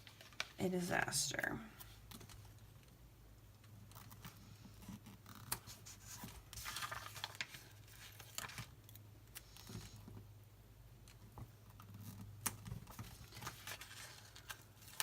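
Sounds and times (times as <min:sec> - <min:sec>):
paper rustle: 0:03.9 - 0:10.0, 0:12.0 - 0:15.0.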